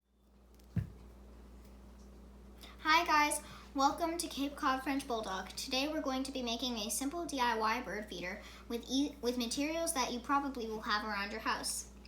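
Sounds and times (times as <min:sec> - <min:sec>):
steady low hum: 0:00.2 - 0:12.0
dull thump: 0:00.7 - 0:01.0.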